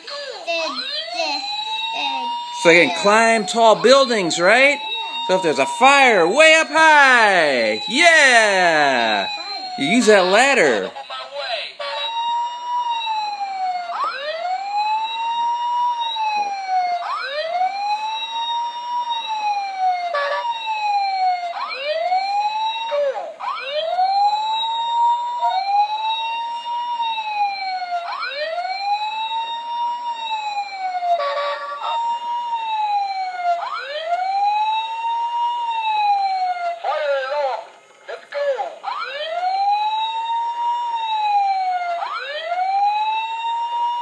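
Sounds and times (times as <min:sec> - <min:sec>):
toy siren wailing: 0:00.5 - 0:10.9.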